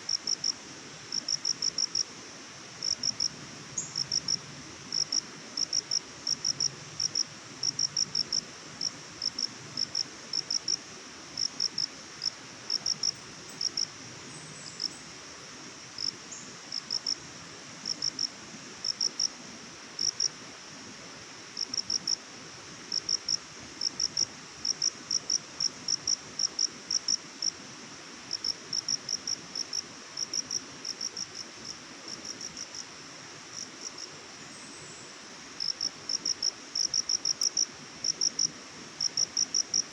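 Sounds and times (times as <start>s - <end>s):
steady background hiss: 0.0s - 39.9s
cricket chirping: 2.8s - 10.8s, 11.4s - 13.9s, 16.0s - 17.2s, 17.8s - 19.3s, 20.0s - 20.3s, 35.6s - 39.9s.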